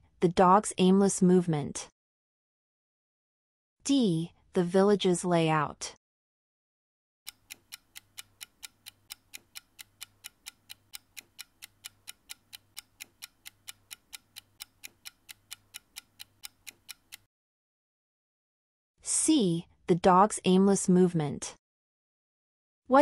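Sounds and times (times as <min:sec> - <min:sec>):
countdown timer ticking: 0:07.3 - 0:17.3.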